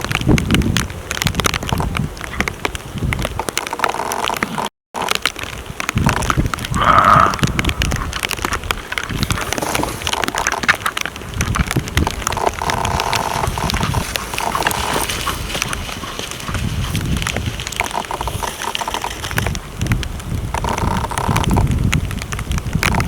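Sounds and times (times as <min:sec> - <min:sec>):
antlers and hooves clacking: 0:00.0 - 0:23.0
deer calling: 0:06.7 - 0:08.1, 0:12.3 - 0:17.0.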